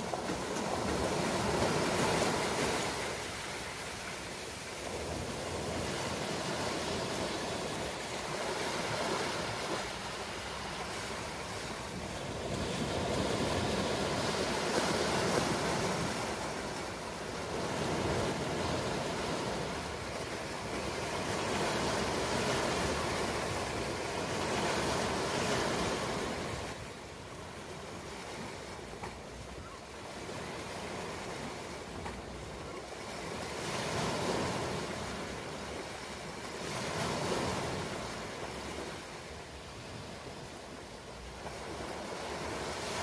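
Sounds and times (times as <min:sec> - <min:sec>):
ocean waves washing: 0:00.0 - 0:43.0.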